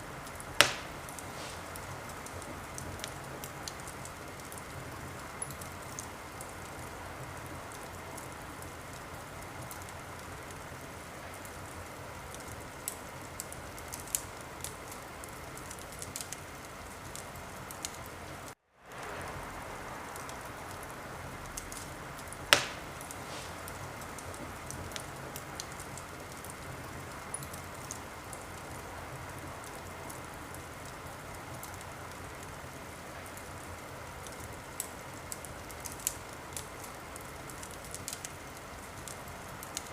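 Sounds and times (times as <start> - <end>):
wood fire crackling: 0.0 - 39.9
sharp loud pop: 0.6 - 1.0, 22.6 - 23.6.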